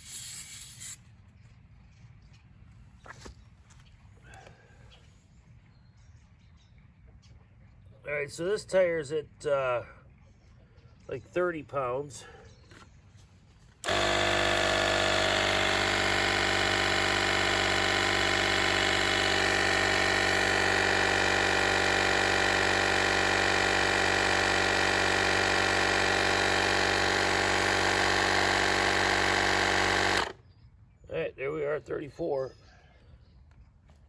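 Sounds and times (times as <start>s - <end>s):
small air compressor running: 0.0s - 1.1s, 13.7s - 30.4s.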